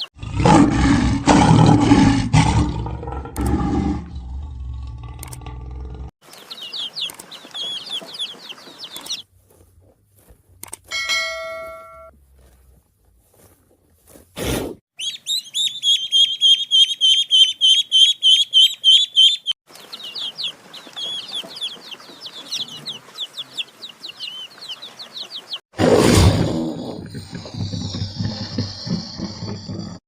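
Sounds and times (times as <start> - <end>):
chicks peeping: 6.3 - 9.2, 15.0 - 25.6.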